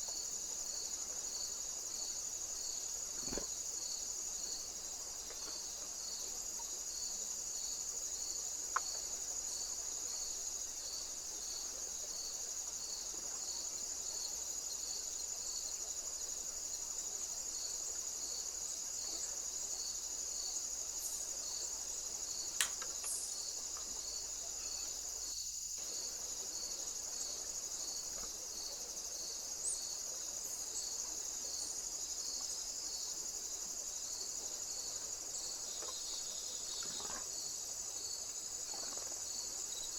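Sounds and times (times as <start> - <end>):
crickets trilling: 0.0 - 39.9
sharp clicks: 22.6 - 23.2.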